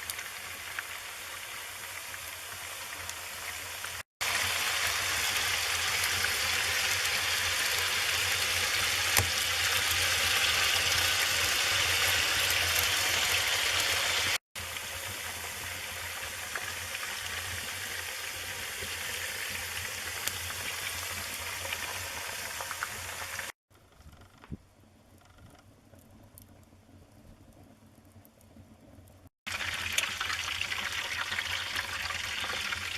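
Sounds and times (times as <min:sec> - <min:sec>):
wood fire crackling and popping: 0:09.1 - 0:10.0, 0:25.4 - 0:29.2.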